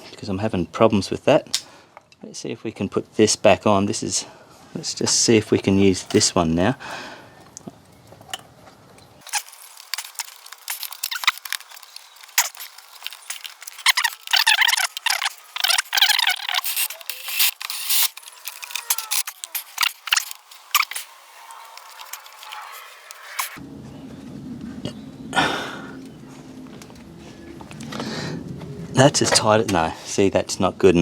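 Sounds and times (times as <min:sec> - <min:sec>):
metal clamp clicking and scraping: 0:09.2 - 0:21.1.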